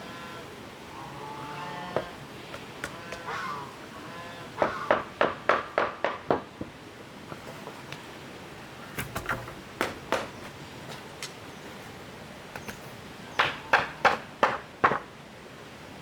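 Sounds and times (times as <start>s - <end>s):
sharp knocks: 4.6s - 6.7s, 9.0s - 10.4s, 13.4s - 15.1s.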